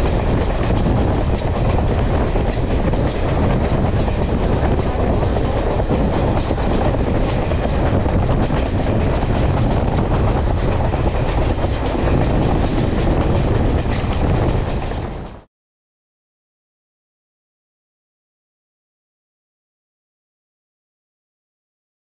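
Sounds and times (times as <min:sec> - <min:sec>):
train wheels rumbling on rails: 0:00.0 - 0:15.5.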